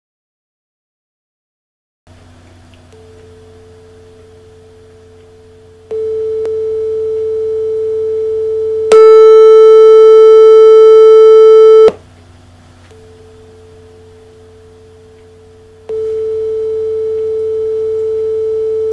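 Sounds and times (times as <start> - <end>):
faint low hum: 2.1 - 18.9
sine test tone from speaker: 2.9 - 12.0, 12.9 - 18.9.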